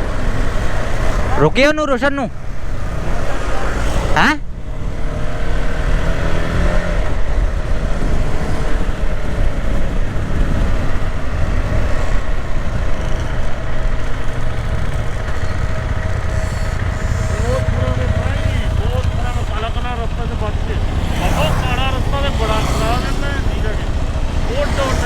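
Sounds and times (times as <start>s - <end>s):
motorcycle engine running: 2.3s - 25.0s
wind noise on microphone: 4.7s - 17.8s.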